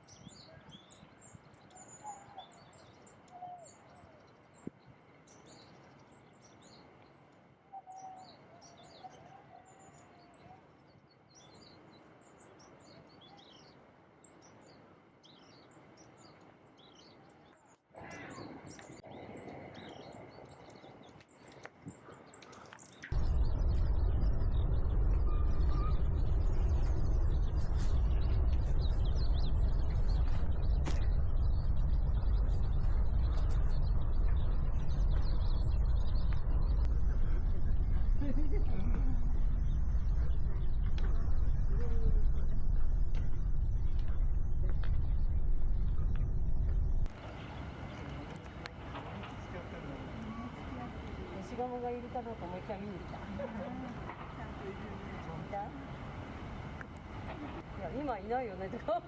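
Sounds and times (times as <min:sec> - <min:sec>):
small birds chirping: 0:00.0 - 0:59.0
loud low rumbling: 0:23.1 - 0:59.0.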